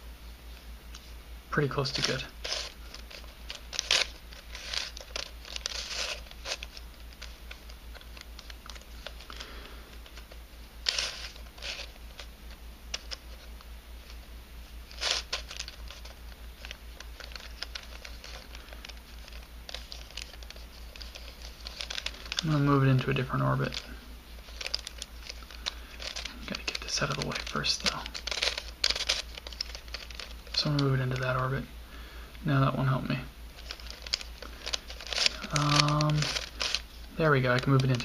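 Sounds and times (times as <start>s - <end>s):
puzzle pieces clicking and scraping: 1.8s - 12.3s, 14.9s - 31.3s, 33.6s - 36.9s.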